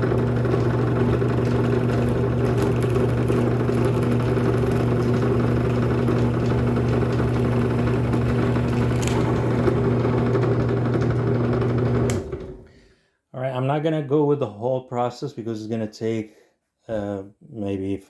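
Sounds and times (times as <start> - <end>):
drill bit boring into wood: 0.0 - 12.6
drill press motor humming: 0.0 - 12.7.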